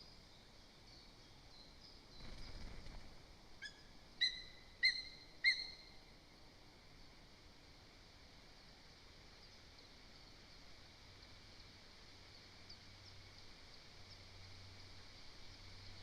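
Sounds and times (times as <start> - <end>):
bird giving sharp high calls: 3.6 - 5.8.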